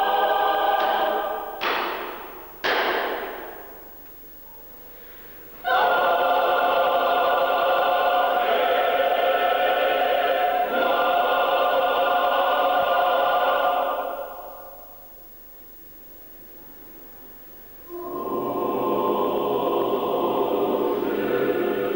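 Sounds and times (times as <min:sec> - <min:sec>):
choir singing held chord: 0:00.0 - 0:03.8, 0:05.6 - 0:14.9, 0:17.8 - 0:21.9.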